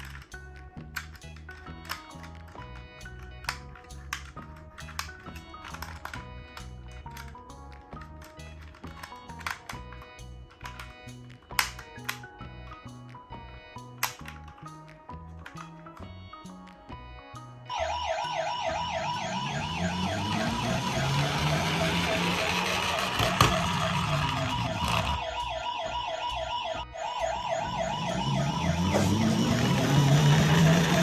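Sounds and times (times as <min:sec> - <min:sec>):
toy siren warbling: 0:17.7 - 0:31.0.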